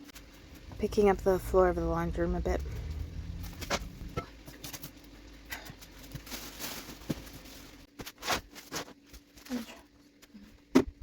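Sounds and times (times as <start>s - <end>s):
rustling: 0.0s - 9.7s.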